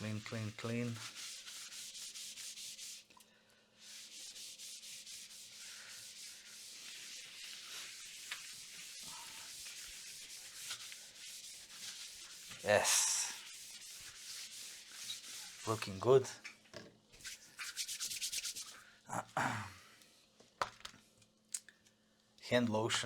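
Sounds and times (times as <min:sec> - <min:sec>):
brush scrubbing circuit board: 0:03.8 - 0:16.3.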